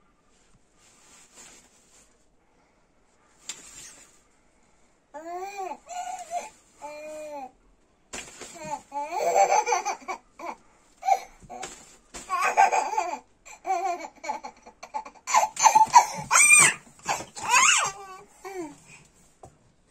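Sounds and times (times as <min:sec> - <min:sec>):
toddler babbling and squealing: 0:15.6 - 0:18.7.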